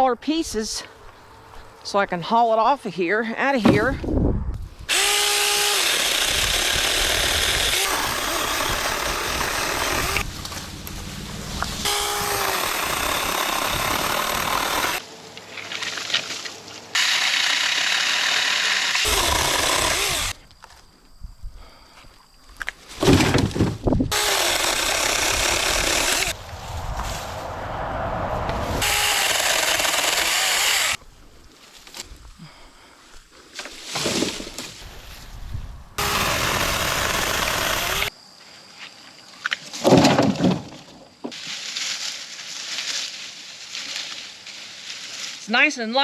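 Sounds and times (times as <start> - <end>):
chainsaw cutting a branch: 4.9 - 15.0, 17.0 - 20.4, 24.1 - 26.4, 28.8 - 31.0, 36.0 - 38.1.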